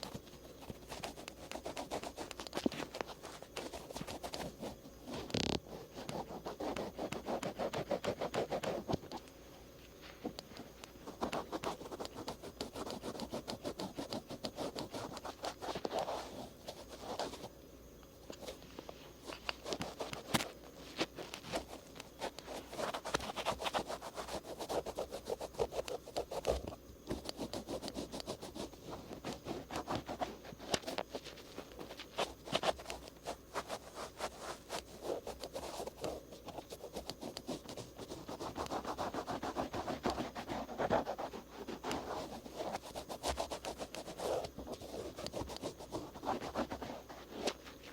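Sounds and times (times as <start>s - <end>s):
cotton swabs scratching ear: 0.6s - 4.7s, 11.1s - 17.5s, 21.0s - 47.6s.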